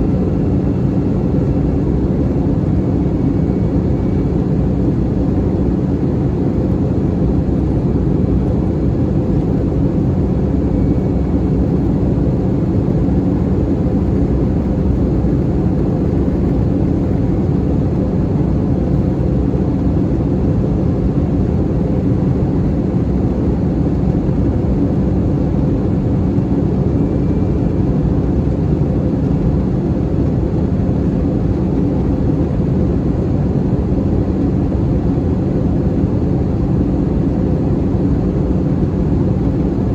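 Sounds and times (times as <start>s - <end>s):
low steady hum: 0.0s - 28.8s
airplane cabin engine drone: 0.0s - 39.9s.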